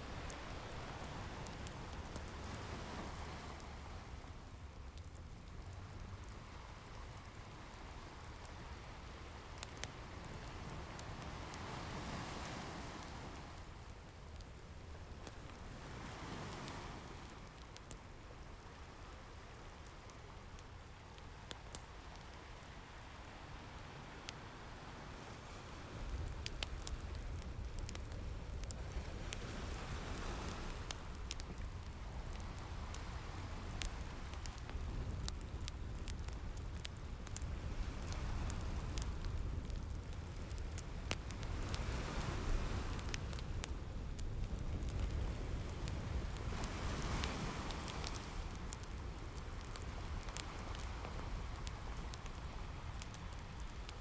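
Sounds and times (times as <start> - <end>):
wood fire crackling: 0.0 - 54.0
ocean waves washing: 45.6 - 48.8.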